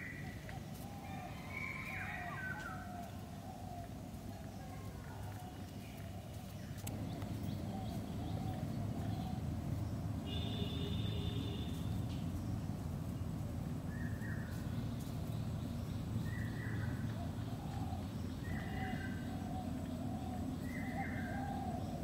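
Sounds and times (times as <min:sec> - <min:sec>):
steady low rumble: 0:03.2 - 0:10.3.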